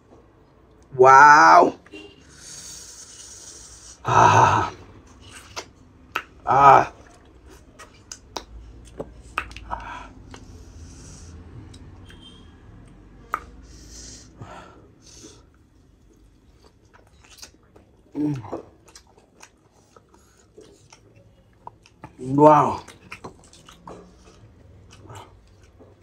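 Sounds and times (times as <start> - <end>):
man chewing with wet smacks: 4.7 - 14.0, 14.8 - 26.0.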